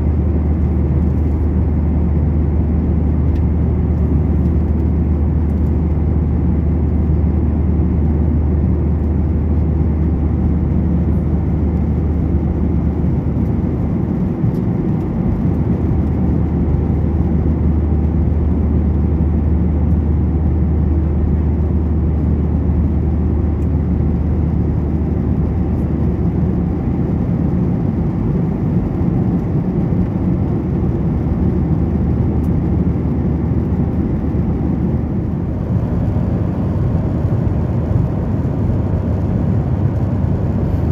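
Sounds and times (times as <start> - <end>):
low aircraft engine drone: 0.0 - 40.9
rush of airflow: 27.4 - 40.9.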